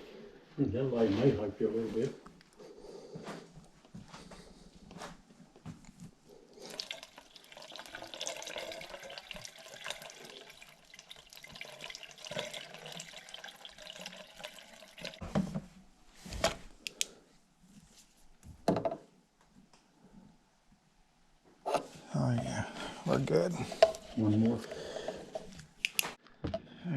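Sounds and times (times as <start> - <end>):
water rushing through drain line: 6.6 - 15.2.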